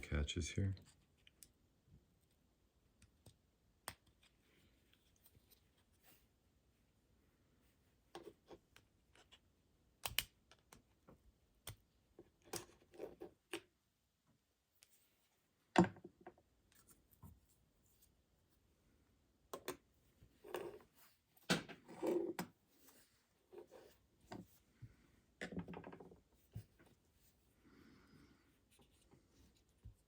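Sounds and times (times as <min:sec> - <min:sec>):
plastic clicks and snaps: 0:10.0 - 0:10.9.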